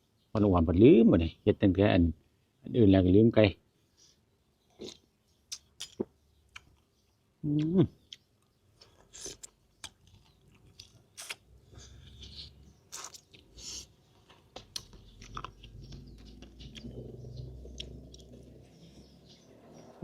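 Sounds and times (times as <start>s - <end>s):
person chewing with wet smacks: 4.8s - 6.9s, 7.6s - 19.0s.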